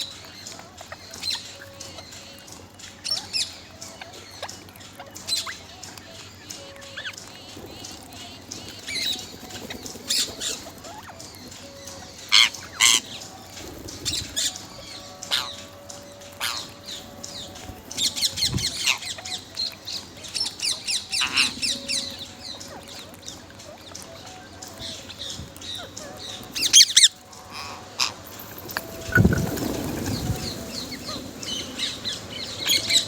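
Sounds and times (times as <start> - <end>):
parrot squawking and chirping: 6.8 - 33.0.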